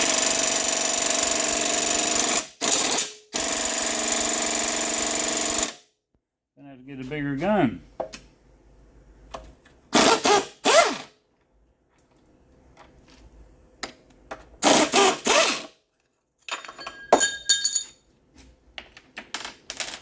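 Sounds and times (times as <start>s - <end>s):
impact wrench bursts: 9.9s - 11.1s, 14.6s - 15.8s
metal parts clinking: 16.4s - 18.0s, 18.8s - 20.0s.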